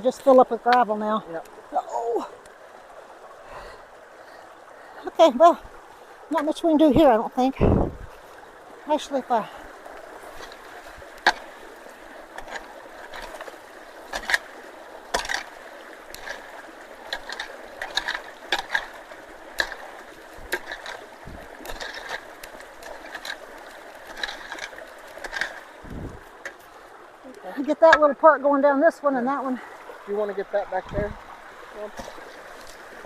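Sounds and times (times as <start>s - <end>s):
running water rushing: 0.0s - 33.0s
knocks clicks and scrapes: 21.6s - 26.6s.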